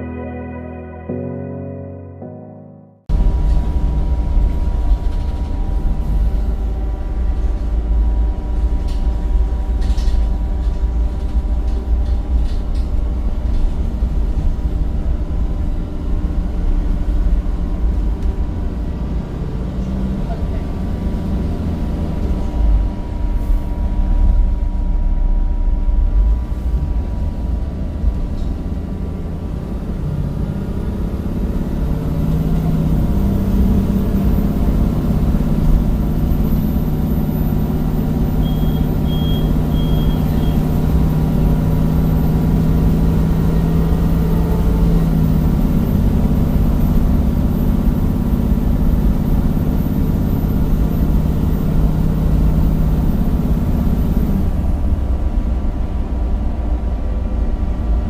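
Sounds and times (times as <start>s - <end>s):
bus diesel engine: 3.1s - 58.0s
high beeps: 38.4s - 40.7s.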